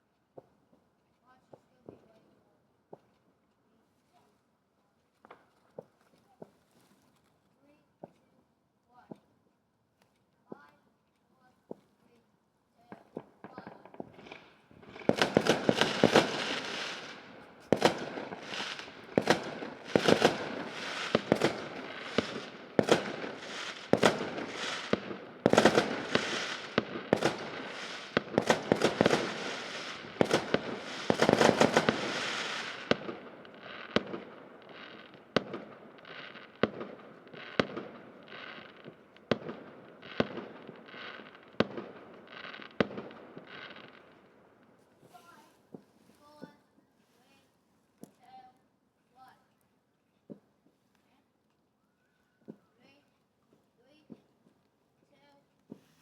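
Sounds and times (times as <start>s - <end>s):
fireworks bangs: 12.9s - 44.2s.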